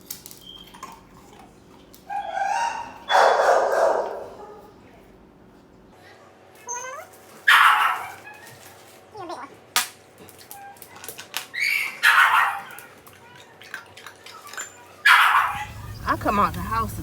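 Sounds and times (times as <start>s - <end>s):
dogs whining: 0.3s - 4.8s, 6.6s - 9.6s, 10.2s - 16.0s.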